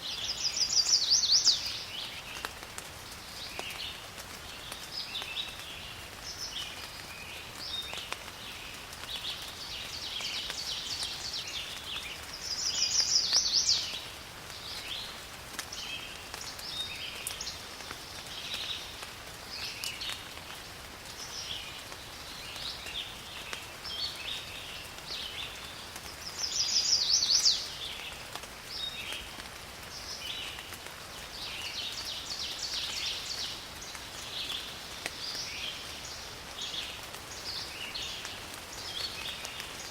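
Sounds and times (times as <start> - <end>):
faint rain hiss: 0.0 - 39.9
birds chirping and calling: 0.2 - 2.3, 9.7 - 14.1, 26.3 - 28.1.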